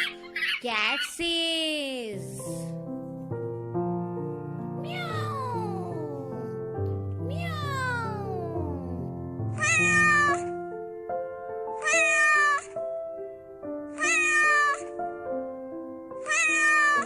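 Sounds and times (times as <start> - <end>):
light background music: 0.0 - 17.0
cat meowing: 4.9 - 5.8, 9.5 - 10.5, 11.8 - 12.8, 14.0 - 14.9, 16.2 - 17.0.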